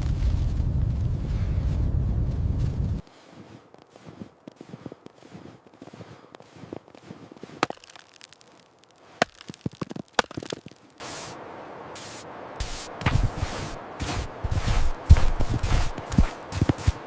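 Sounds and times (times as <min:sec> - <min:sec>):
sharp cracks and snaps: 0:03.7 - 0:11.0
steady rushing noise: 0:10.5 - 0:17.0.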